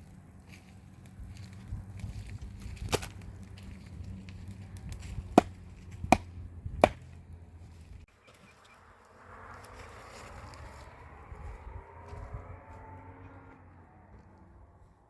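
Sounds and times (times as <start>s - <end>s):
sharp knocks: 6.1s - 7.0s.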